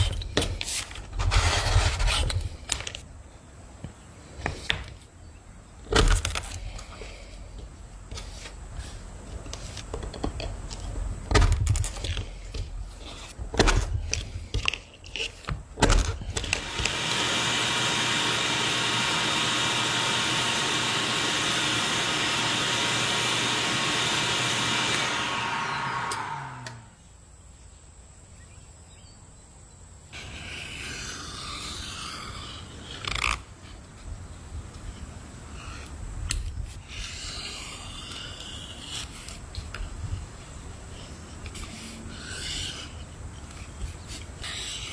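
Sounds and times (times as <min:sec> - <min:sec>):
small electric motor tool running: 0:16.4 - 0:27.0.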